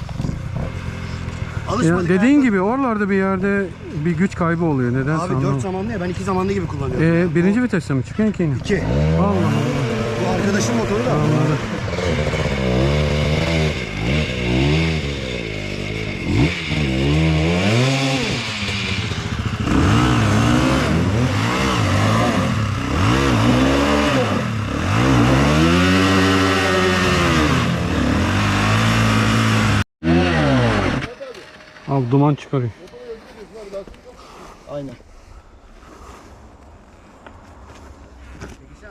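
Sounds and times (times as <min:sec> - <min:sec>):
dirt bike engine revving: 0:08.6 - 0:32.4.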